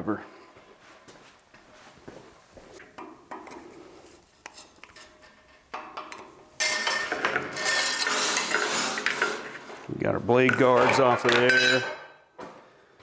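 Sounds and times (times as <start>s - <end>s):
metallic rattle and scrape: 3.3s - 12.0s
metal parts clinking: 4.6s - 9.8s, 10.5s - 12.1s.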